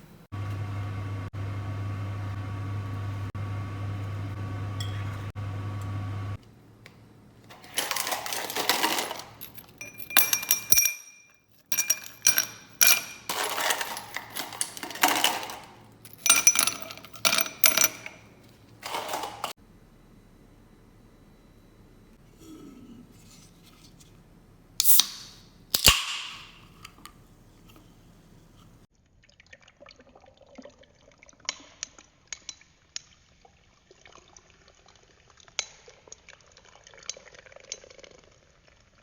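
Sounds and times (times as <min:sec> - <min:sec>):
kitchen utensils and dishes clattering: 0:07.5 - 0:19.6.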